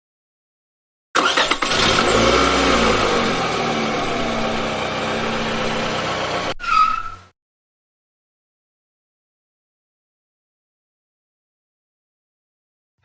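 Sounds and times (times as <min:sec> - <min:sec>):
car engine revving: 0:01.2 - 0:06.6.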